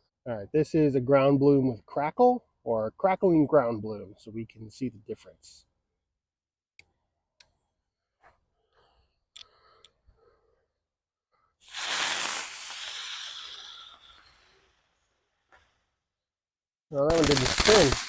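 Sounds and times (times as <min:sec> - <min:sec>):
firework spraying sparks hiss: 0:11.6 - 0:15.0, 0:17.1 - 0:18.0.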